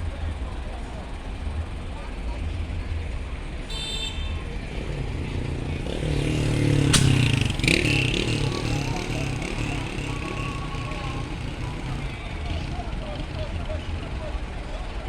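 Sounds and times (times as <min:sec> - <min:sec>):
vehicle engines idling: 0:00.0 - 0:15.0
engine revving: 0:04.7 - 0:12.9.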